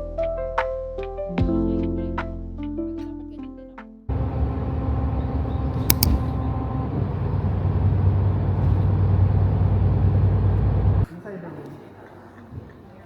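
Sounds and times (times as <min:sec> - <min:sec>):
low rumble with hum: 0:04.1 - 0:11.1
quick clicks: 0:05.7 - 0:06.4.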